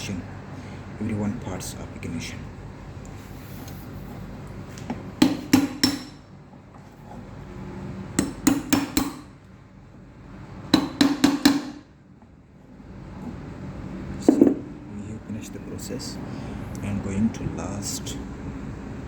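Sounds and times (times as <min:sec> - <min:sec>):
small hammer tapping on metal: 0:05.2 - 0:06.2, 0:08.2 - 0:09.2.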